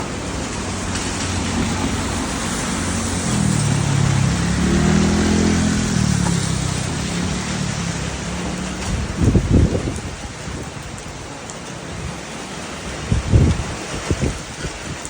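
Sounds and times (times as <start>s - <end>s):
heavy rain hissing: 0.0s - 15.0s
vehicle engine passing: 0.7s - 9.8s.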